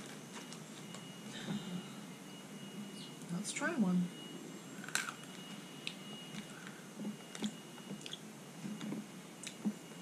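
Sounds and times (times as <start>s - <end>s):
person chewing crunchy snacks: 4.7s - 8.3s.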